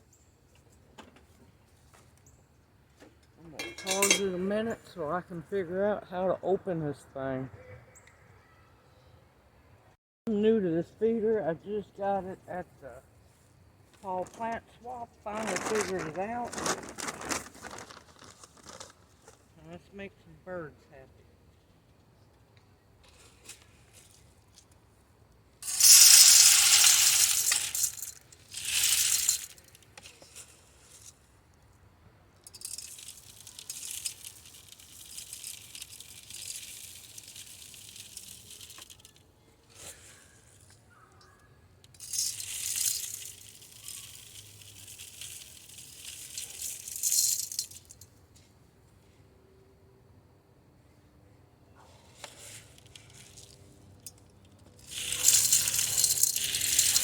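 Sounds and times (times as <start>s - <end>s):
bird seed pouring into feeder: 25.6s - 29.6s, 32.6s - 39.2s, 42.0s - 47.8s, 54.8s - 57.0s.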